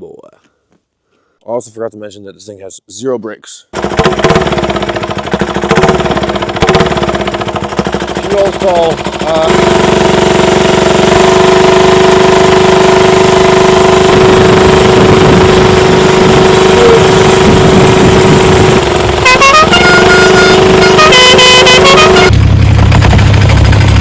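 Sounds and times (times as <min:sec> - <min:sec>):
diesel engine running: 0:03.8 - 0:24.0
horn-like tone: 0:14.0 - 0:18.1, 0:19.1 - 0:22.4.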